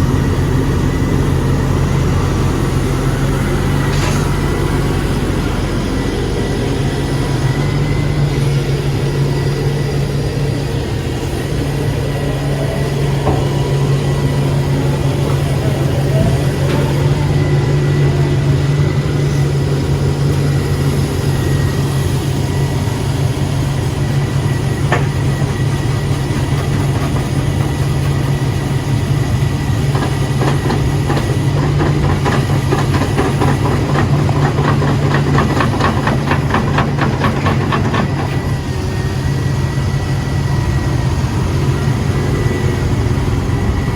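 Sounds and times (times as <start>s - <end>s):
diesel excavator engine running: 0.0s - 43.9s.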